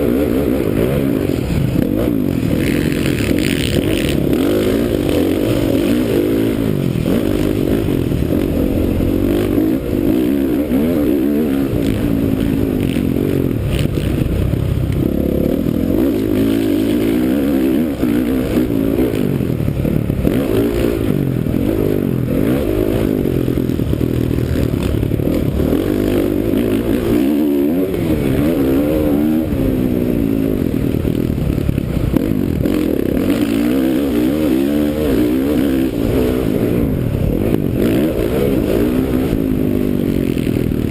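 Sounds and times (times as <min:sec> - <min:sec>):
motocross engine revving: 0:00.0 - 0:40.9.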